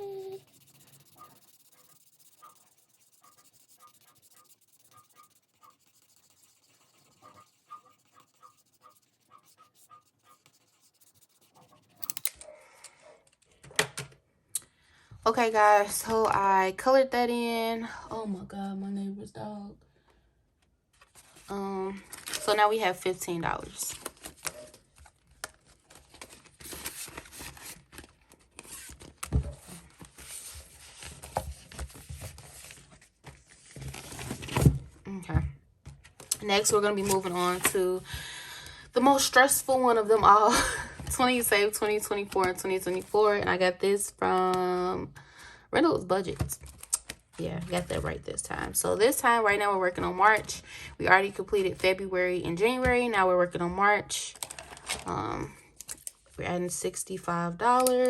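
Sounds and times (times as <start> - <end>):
marker scratching on paper: 0.0 - 12.3
paper rustling and crinkling: 20.9 - 22.7, 23.7 - 34.8, 54.4 - 55.1.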